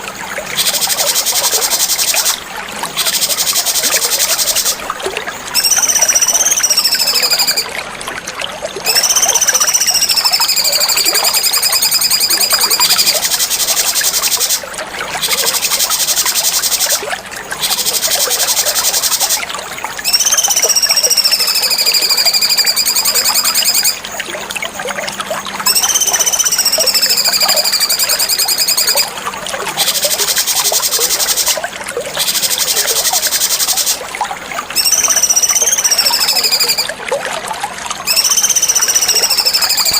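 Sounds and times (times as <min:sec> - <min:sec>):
fast buzzy bird trills: 0:00.0 - 0:04.8, 0:05.6 - 0:07.7, 0:08.8 - 0:14.6, 0:15.2 - 0:17.0, 0:17.6 - 0:19.4, 0:20.0 - 0:24.0, 0:25.6 - 0:29.1, 0:29.7 - 0:31.6, 0:32.2 - 0:34.0, 0:34.7 - 0:36.9, 0:38.1 - 0:39.9
water trickling: 0:00.0 - 0:39.9
bird whistling: 0:05.6 - 0:07.7, 0:08.8 - 0:14.6, 0:20.0 - 0:24.0, 0:25.6 - 0:29.1, 0:34.8 - 0:36.9, 0:38.1 - 0:39.9.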